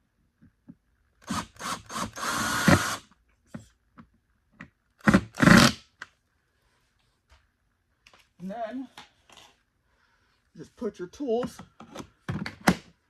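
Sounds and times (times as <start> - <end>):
power drill driving screw: 1.2 - 3.0, 5.0 - 5.8.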